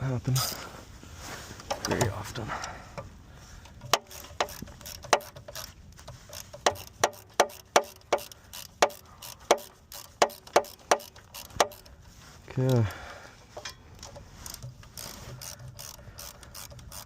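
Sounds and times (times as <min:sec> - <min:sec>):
hand ratchet clicking: 0:03.6 - 0:12.0, 0:13.6 - 0:17.0.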